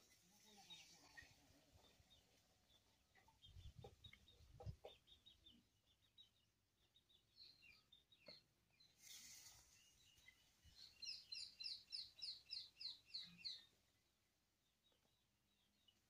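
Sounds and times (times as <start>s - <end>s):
bird chirping: 0.2s - 16.0s
rustle: 8.9s - 10.9s.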